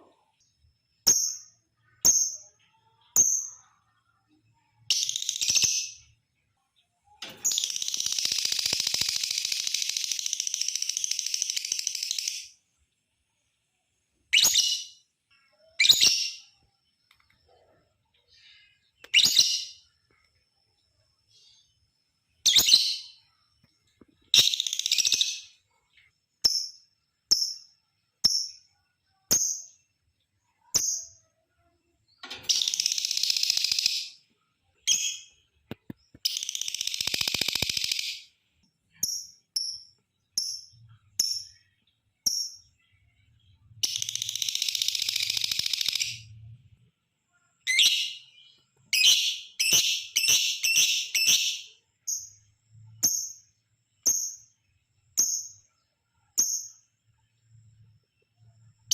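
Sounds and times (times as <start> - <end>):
lovebird chirps: 0.0 - 12.6, 14.3 - 46.7, 47.3 - 58.9
lovebird chattering trills: 36.2 - 38.2.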